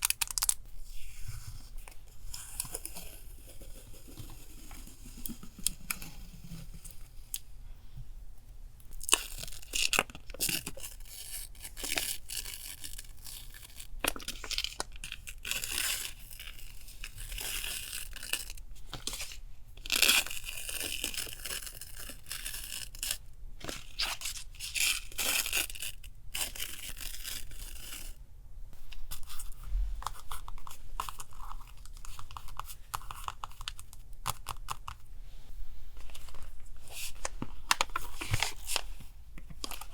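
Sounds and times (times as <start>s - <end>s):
paper rustling: 36.0s - 39.9s.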